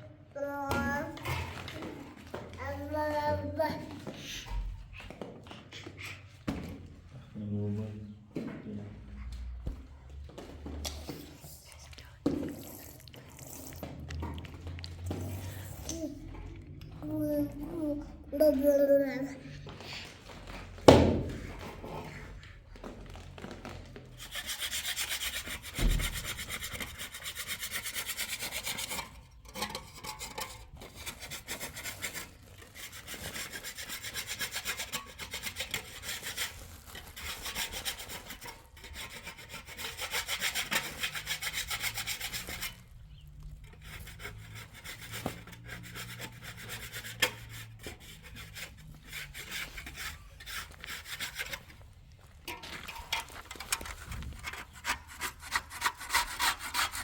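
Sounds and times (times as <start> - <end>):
hand tool rasping on a surface: 24.2 - 51.8, 53.5 - 57.0.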